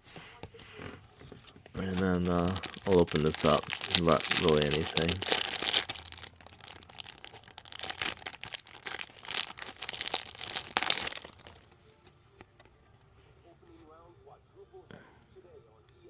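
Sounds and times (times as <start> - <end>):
plastic wrapping crinkling and tearing: 1.8 - 11.8.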